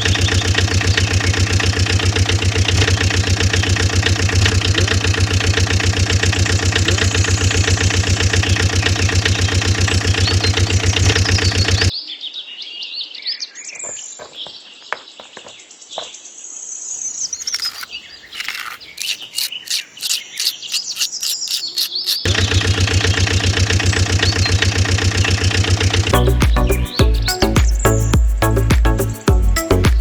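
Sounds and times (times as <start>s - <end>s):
high chirping calls: 17.1s - 22.3s
quick clicks: 17.3s - 22.3s.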